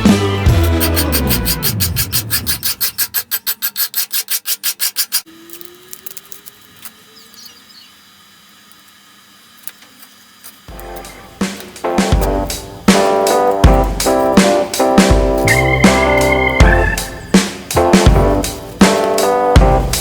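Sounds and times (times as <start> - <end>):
hand tool scraping: 0.4 - 5.7, 10.4 - 17.8, 18.4 - 19.4.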